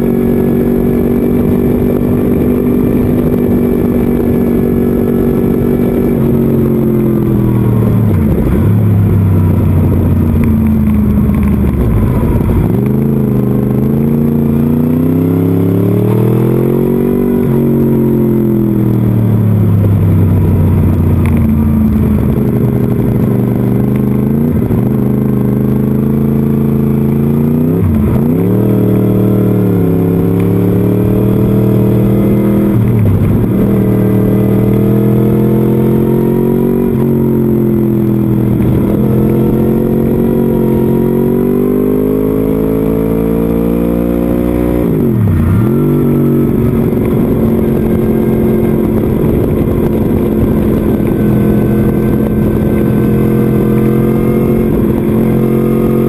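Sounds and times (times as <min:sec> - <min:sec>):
motorcycle engine revving: 0:00.0 - 0:56.0
wind rush on microphone: 0:00.0 - 0:56.0.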